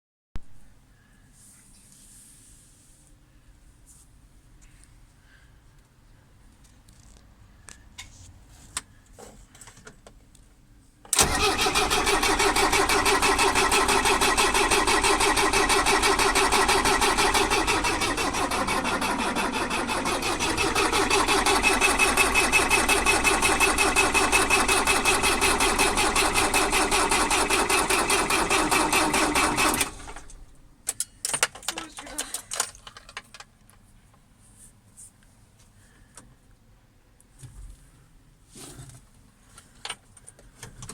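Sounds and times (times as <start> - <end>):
starter motor cranking diesel engine: 11.1 - 30.6.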